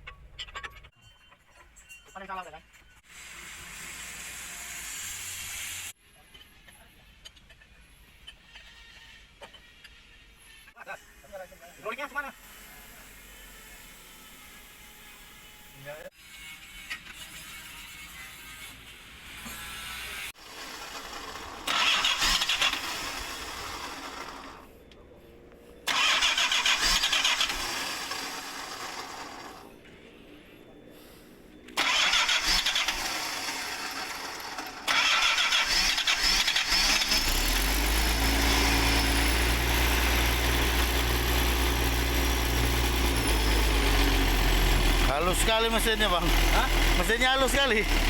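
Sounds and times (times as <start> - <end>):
diesel engine starter cranking: 20.4 - 24.7, 25.8 - 29.7, 31.6 - 48.0
diesel engine idling: 20.4 - 24.8, 25.9 - 48.0.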